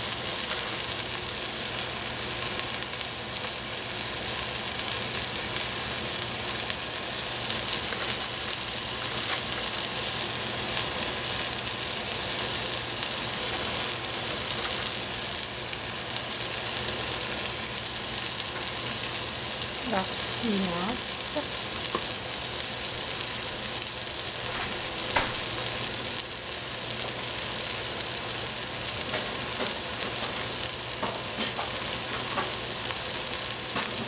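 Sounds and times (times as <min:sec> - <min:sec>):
food sizzling in a pan: 0:00.0 - 0:34.0.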